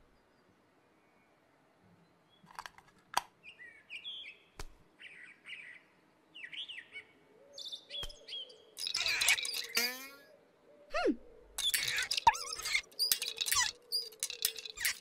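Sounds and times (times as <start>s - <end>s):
birds chirping: 3.4s - 15.0s.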